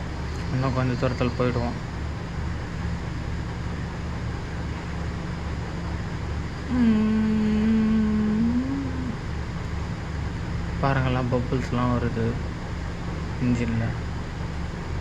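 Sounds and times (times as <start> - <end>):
motor boat engine rumbling: 0.0 - 15.0.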